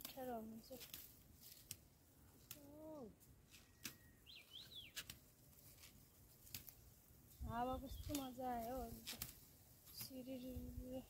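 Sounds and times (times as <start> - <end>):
high bird chirps: 3.6 - 5.1.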